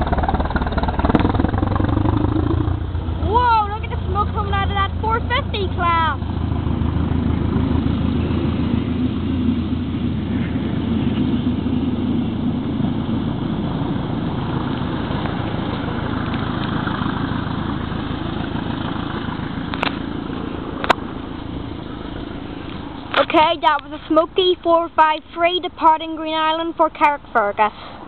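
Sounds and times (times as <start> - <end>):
diesel train engine droning: 0.0 - 28.0.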